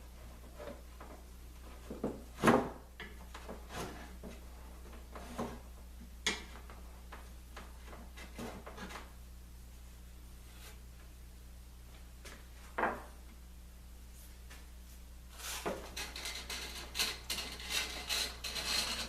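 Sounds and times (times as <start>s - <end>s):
hand tool scraping wood: 3.5s - 4.4s, 15.4s - 19.0s.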